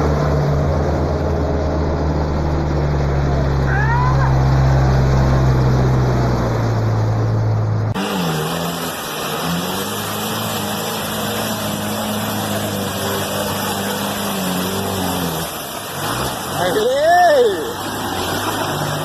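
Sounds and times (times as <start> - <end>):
deep engine hum: 0.0 - 16.8.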